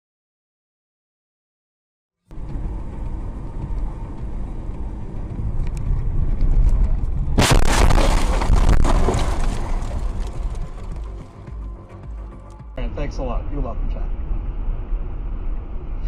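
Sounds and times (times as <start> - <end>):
rocket launch roar: 7.4 - 10.3.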